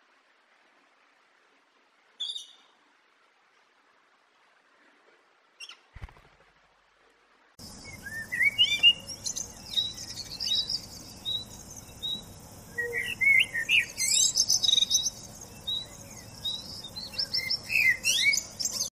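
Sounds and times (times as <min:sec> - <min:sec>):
birds chirping and singing: 0:07.6 - 0:18.9.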